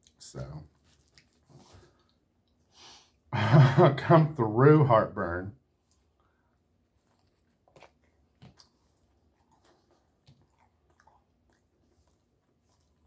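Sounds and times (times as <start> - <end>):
chewing with crunches: 0.0 - 2.7, 5.7 - 13.0.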